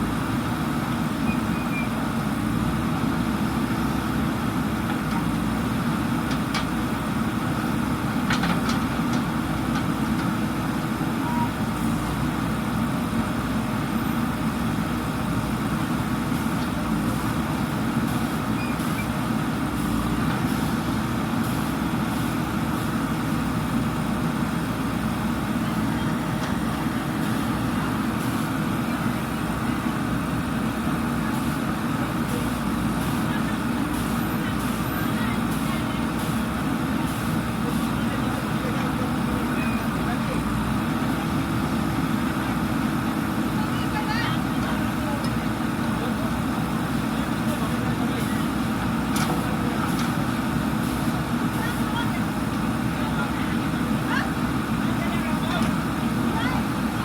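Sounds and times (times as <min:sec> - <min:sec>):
backhoe diesel engine running: 0:00.0 - 0:57.0.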